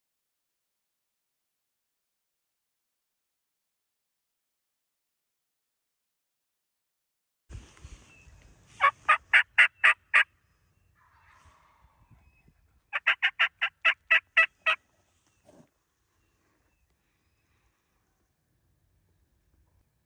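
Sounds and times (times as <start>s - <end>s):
turkey yelping: 8.8s - 10.3s, 12.9s - 14.8s.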